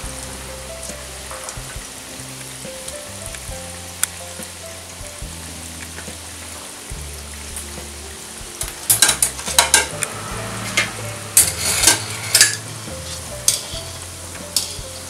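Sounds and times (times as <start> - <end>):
dough balls sizzling in oil: 0.0 - 15.0
metal skimmer scraping pan: 7.5 - 15.0.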